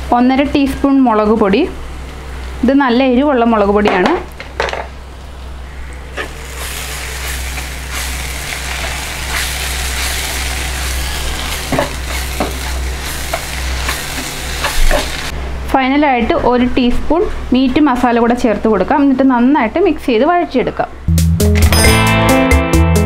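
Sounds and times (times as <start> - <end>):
onions sizzling in oil: 5.4 - 15.3
spatula scraping a pan: 6.1 - 15.3
spatula tapping a pan: 11.7 - 12.7.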